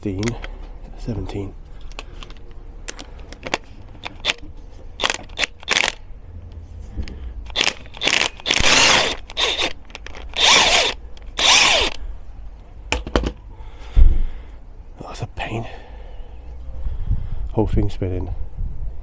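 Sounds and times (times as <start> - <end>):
cordless power tool spinning: 4.0 - 4.4, 5.0 - 6.0, 7.5 - 12.0
sharp clicks: 4.0 - 4.4, 5.0 - 6.0, 7.5 - 12.0.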